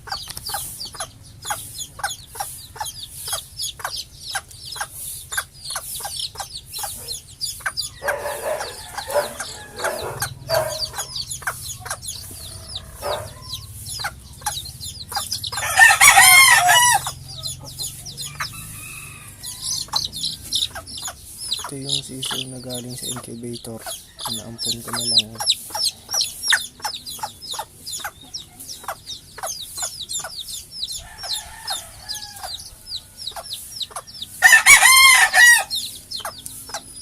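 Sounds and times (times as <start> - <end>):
chicks peeping: 0.0 - 37.0
hens clucking: 0.0 - 37.0
rooster crowing: 7.8 - 11.4, 12.2 - 13.8, 14.9 - 20.8, 24.0 - 25.4, 31.0 - 33.3, 34.4 - 35.8.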